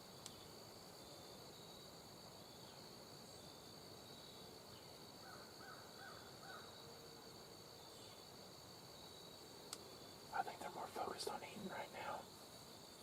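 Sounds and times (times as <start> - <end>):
insects trilling: 0.0 - 13.0
faint bird calls: 5.2 - 6.8.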